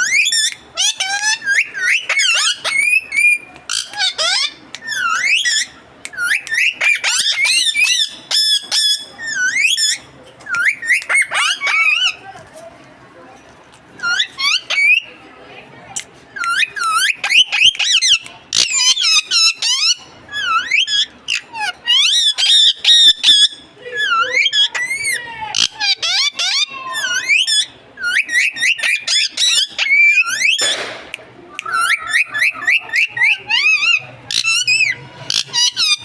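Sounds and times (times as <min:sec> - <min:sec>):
parakeet chattering: 0:00.0 - 0:12.2, 0:14.0 - 0:15.1, 0:24.4 - 0:30.7, 0:31.6 - 0:36.0
parakeet squawk: 0:00.0 - 0:12.2, 0:16.5 - 0:30.7, 0:31.7 - 0:36.0.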